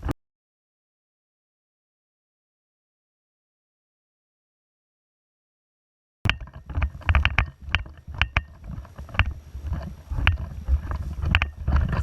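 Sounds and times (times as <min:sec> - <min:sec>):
sharp clicks and knocks: 0:06.3 - 0:12.0
wind rumbling on microphone: 0:06.3 - 0:12.0.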